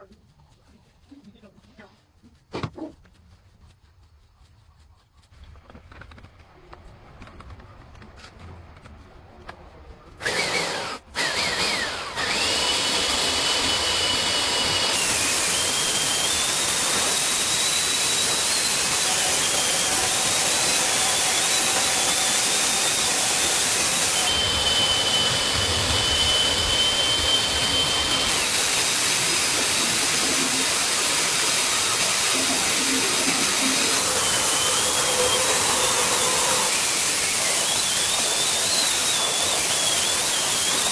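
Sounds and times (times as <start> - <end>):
power tool hissing and whining: 10.2 - 40.9.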